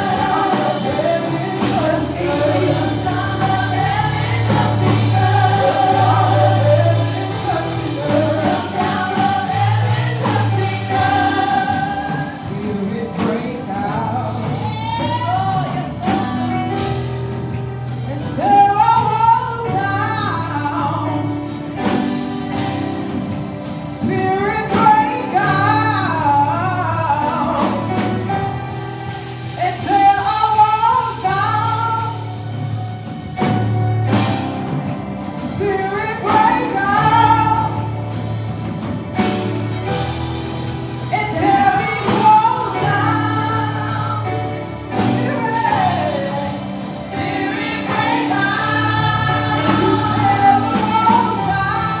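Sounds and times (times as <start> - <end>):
bass notes: 0.0 - 24.6
band playing: 0.0 - 52.0
people singing with choir: 0.0 - 52.0
drum hits: 47.2 - 52.0.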